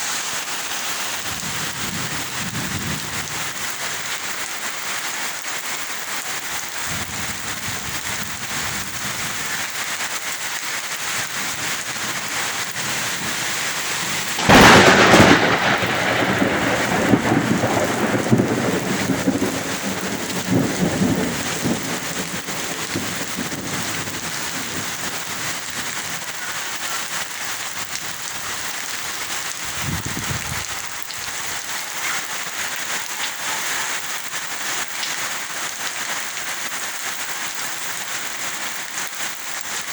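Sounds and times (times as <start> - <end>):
heavy rain: 0.0 - 39.9
thunder crack and rumble: 11.5 - 26.3.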